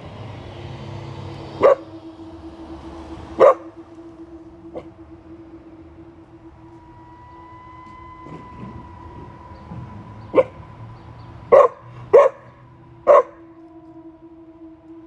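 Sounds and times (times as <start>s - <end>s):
faint hum: 0.0s - 15.0s
puppy barking: 1.6s - 1.8s, 11.5s - 12.5s, 13.1s - 13.4s.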